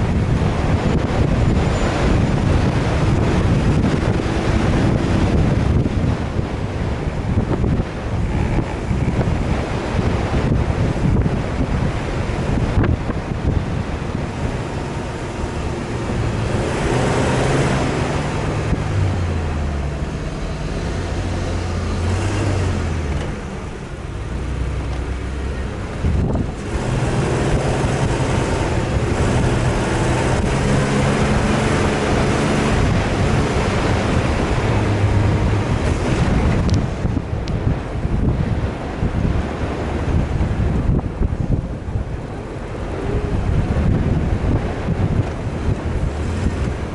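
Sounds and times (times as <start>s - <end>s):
off-road engine revving: 0.0s - 46.9s
wind buffeting microphone: 0.0s - 46.9s.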